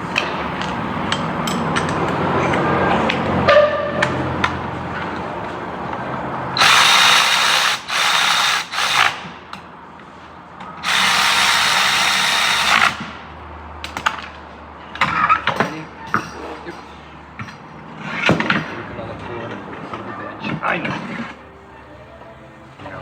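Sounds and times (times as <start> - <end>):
power tool driving fasteners: 6.6 - 9.6, 10.8 - 13.2.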